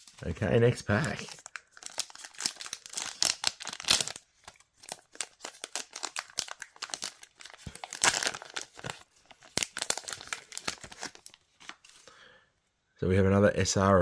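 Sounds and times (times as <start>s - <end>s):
wrapper tearing and crinkling: 0.8s - 12.0s.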